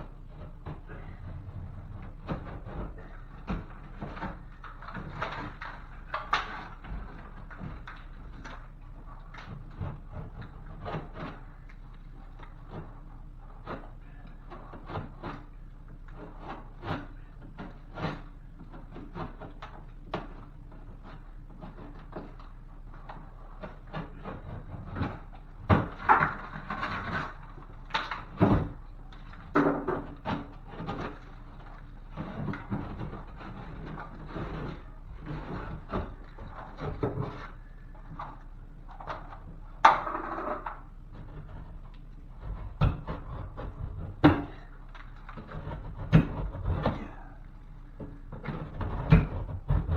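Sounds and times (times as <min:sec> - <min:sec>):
blade scraping through drywall: 0:00.0 - 0:49.9
knocks and taps on drywall: 0:16.2 - 0:47.3, 0:48.0 - 0:49.9.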